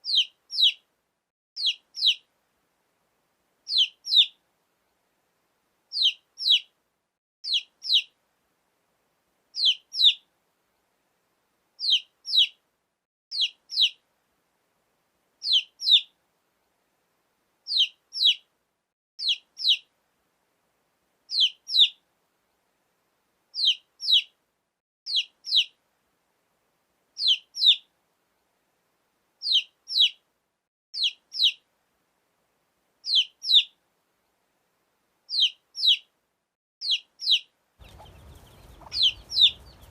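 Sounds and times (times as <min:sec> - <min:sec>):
baby chick peeping: 0:00.0 - 0:00.9, 0:01.6 - 0:02.3, 0:03.7 - 0:04.4, 0:05.9 - 0:06.7, 0:07.4 - 0:08.2, 0:09.6 - 0:10.3, 0:11.8 - 0:12.6, 0:13.3 - 0:14.0, 0:15.4 - 0:16.2, 0:17.7 - 0:18.5, 0:19.2 - 0:19.9, 0:21.3 - 0:22.0, 0:23.6 - 0:24.4, 0:25.1 - 0:25.8, 0:27.2 - 0:27.9, 0:29.4 - 0:30.2, 0:31.0 - 0:31.6, 0:33.0 - 0:33.8, 0:35.3 - 0:36.1, 0:36.8 - 0:39.9.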